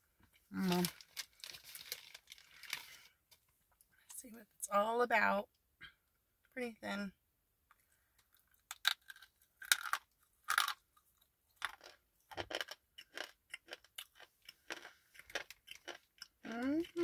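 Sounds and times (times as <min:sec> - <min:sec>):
person crunching slate pencil: 0:08.6 - 0:10.8.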